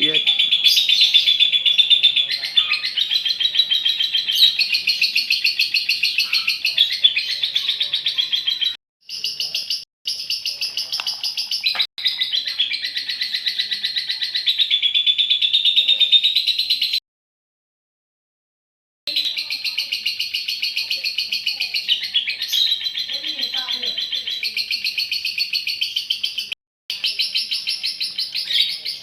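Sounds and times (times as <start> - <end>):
lovebird chattering trill: 0.0 - 17.0, 19.1 - 29.0.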